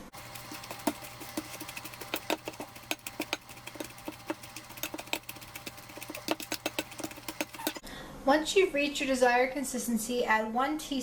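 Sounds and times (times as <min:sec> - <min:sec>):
potato masher knocking against bowl: 0:00.0 - 0:07.8.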